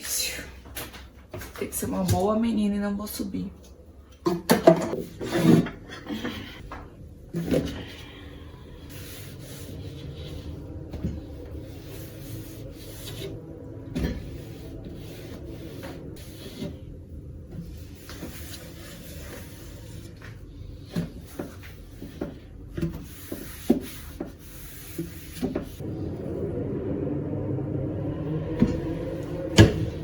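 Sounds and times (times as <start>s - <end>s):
low steady hum: 6.2s - 30.0s.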